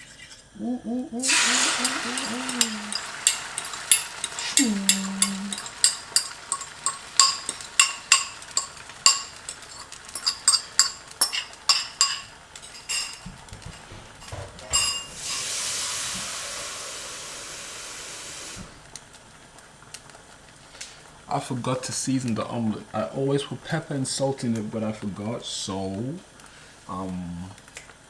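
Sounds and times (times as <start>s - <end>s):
steady hiss: 0.0s - 28.0s
utensil clinking against bowl: 1.3s - 15.5s.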